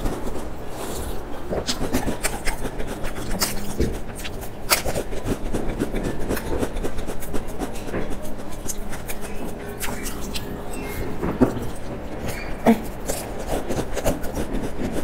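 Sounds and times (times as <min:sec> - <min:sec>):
crunching and chewing biscuit: 0:00.0 - 0:15.0.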